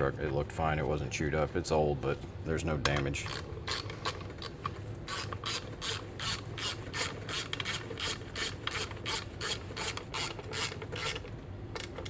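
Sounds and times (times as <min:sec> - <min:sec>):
ratchet clicks: 0:03.2 - 0:12.0.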